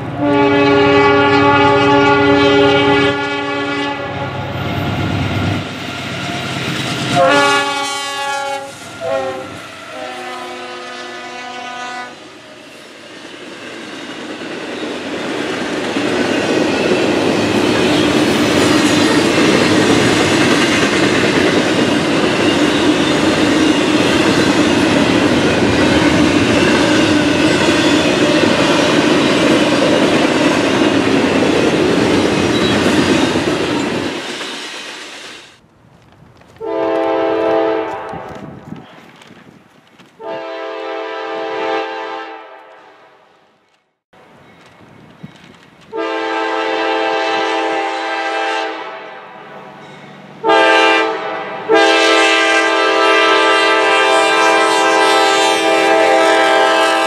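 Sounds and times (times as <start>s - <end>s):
locomotive horn blasts: 0.2s - 4.5s, 7.2s - 12.2s, 36.6s - 38.5s, 40.2s - 43.0s, 45.9s - 49.4s, 50.4s - 57.0s
train wheels rumbling on rails: 4.3s - 11.1s, 12.2s - 40.8s, 43.6s - 48.4s.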